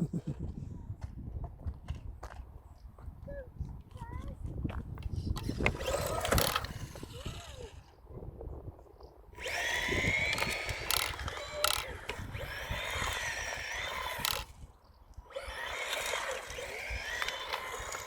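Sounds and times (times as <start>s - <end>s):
rc car motor whining: 5.3s - 8.0s, 9.4s - 18.0s
sharp clicks: 9.4s - 12.3s, 13.9s - 14.5s.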